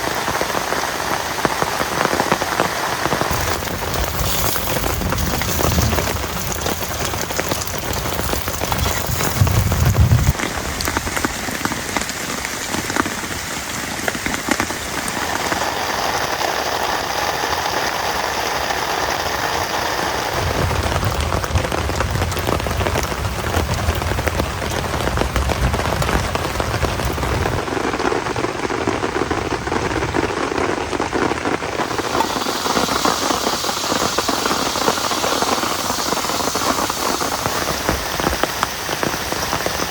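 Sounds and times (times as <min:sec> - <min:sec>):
heavy rain: 0:00.0 - 0:39.9
low rumble: 0:03.3 - 0:10.4.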